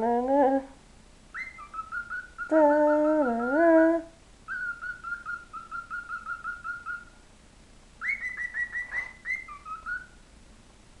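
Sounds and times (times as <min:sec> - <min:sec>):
pet bird whistling: 0:01.3 - 0:03.8, 0:04.5 - 0:07.2, 0:08.0 - 0:10.2.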